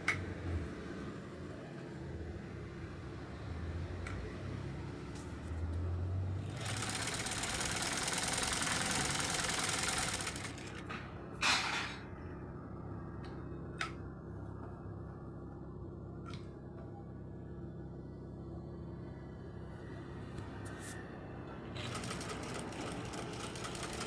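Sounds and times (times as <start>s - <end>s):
sewing machine running fast: 6.4s - 10.8s, 21.8s - 24.0s.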